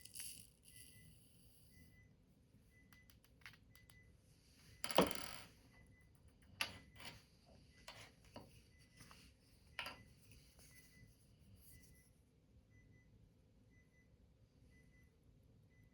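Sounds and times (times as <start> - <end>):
small objects clicking and tapping: 0.0 - 1.0, 4.8 - 5.5.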